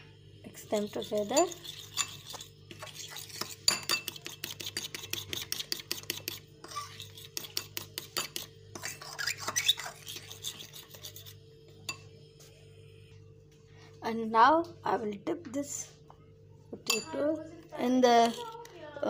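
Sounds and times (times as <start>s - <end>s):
utensil clinking against bowl: 1.1s - 6.3s, 16.8s - 17.2s.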